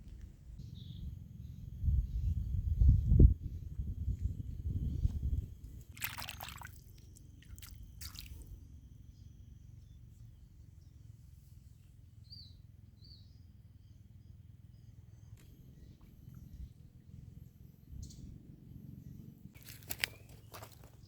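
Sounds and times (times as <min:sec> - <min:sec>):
low steady rumble: 0:00.0 - 0:06.0, 0:06.8 - 0:21.0
water splashing and dripping: 0:05.8 - 0:08.5.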